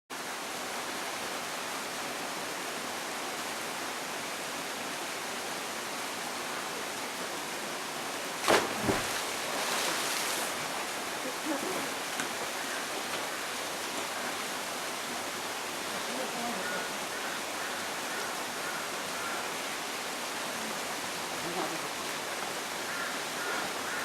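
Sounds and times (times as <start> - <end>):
flowing water: 0.1 - 24.0
splashing hiss: 8.4 - 12.0.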